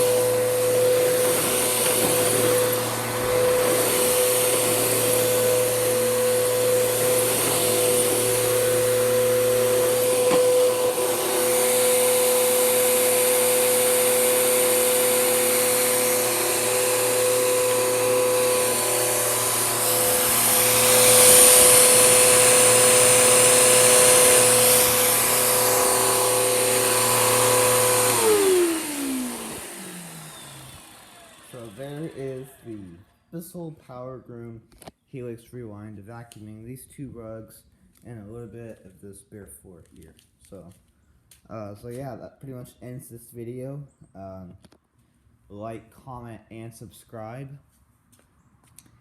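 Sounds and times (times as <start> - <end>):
vacuum cleaner running: 0.0 - 33.0
vacuum motor winding down: 0.0 - 33.1.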